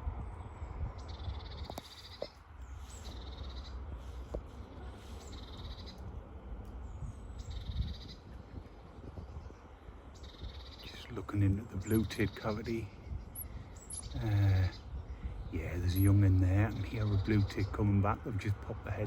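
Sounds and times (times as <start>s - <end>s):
wind rumble on microphone: 0.0s - 19.0s
songbird singing with trill: 6.7s - 19.0s.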